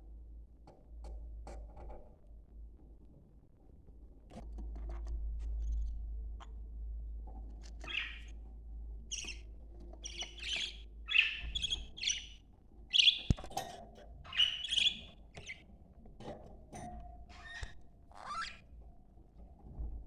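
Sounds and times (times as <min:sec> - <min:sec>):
budgerigars chirping: 0:07.8 - 0:08.3, 0:09.1 - 0:13.5, 0:14.3 - 0:15.6.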